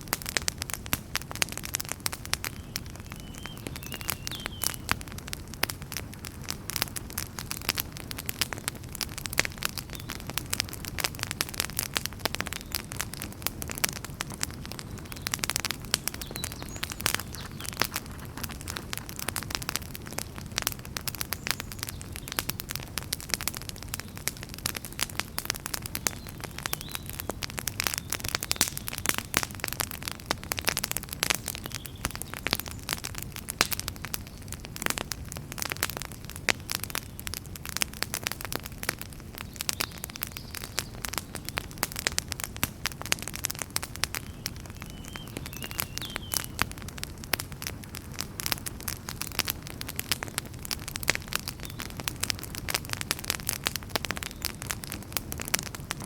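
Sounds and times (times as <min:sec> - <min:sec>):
wood fire crackling and popping: 0:00.0 - 0:56.0
flames rushing: 0:10.3 - 0:26.1, 0:46.6 - 0:56.0.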